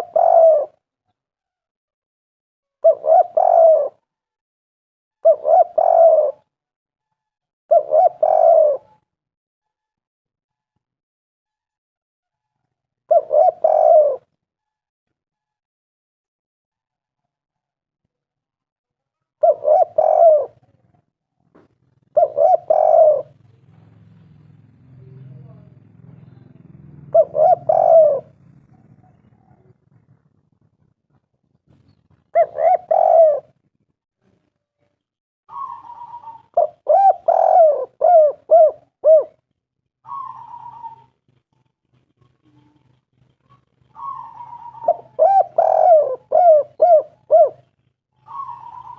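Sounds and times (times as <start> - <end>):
dove cooing: 0.0 - 0.8, 2.8 - 4.1, 5.2 - 6.5, 7.7 - 9.0, 13.1 - 14.3, 19.4 - 20.8, 21.9 - 24.1, 25.0 - 33.6, 35.5 - 48.9
dove raspy rolling note: 22.2 - 30.2.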